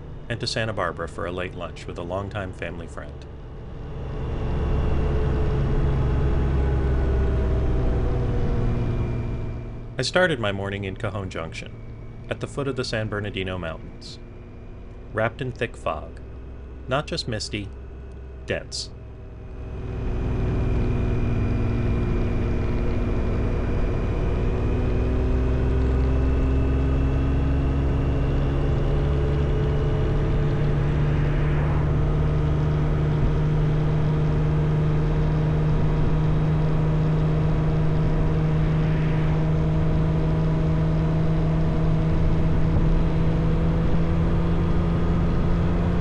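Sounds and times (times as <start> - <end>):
motorcycle engine running: 19.0 - 46.0.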